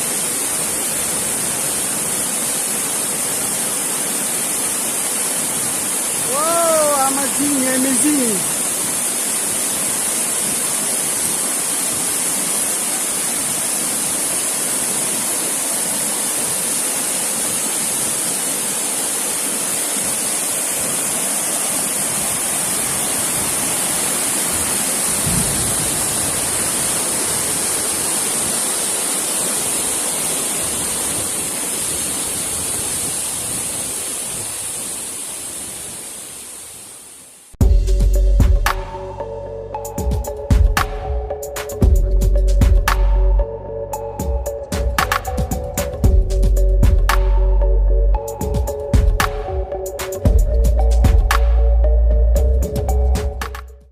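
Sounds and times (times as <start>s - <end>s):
waterfall roaring: 0.0s - 37.6s.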